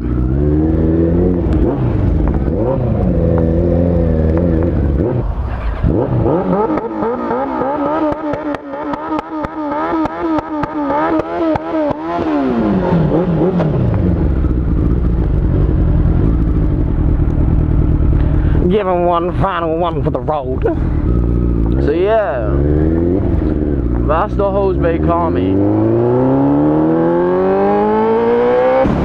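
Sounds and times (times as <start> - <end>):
vehicle engine revving hard: 0.0 - 14.2, 22.3 - 29.0.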